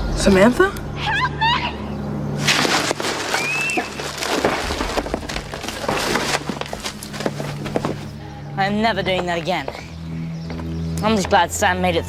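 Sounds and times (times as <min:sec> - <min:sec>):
steady low drone: 0:00.0 - 0:12.0
crackling and crashing: 0:02.4 - 0:08.2.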